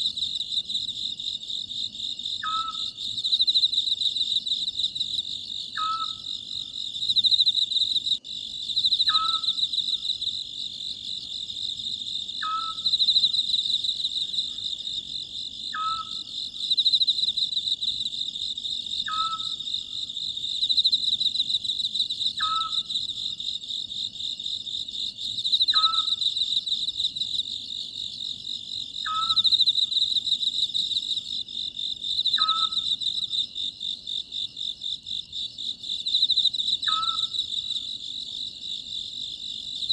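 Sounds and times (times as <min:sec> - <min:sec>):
chorus of crickets: 0:00.0 - 0:39.9
scops owl calling: 0:09.1 - 0:09.6, 0:12.4 - 0:12.9, 0:15.7 - 0:16.2, 0:19.1 - 0:19.6, 0:36.8 - 0:37.4.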